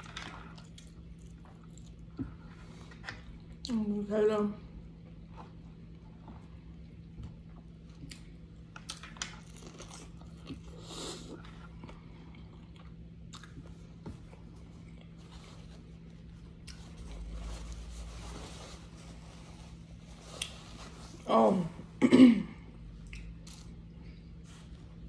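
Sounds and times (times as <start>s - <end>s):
person chewing food: 0.0s - 3.5s, 5.2s - 17.4s
faint steady hum: 0.0s - 25.0s.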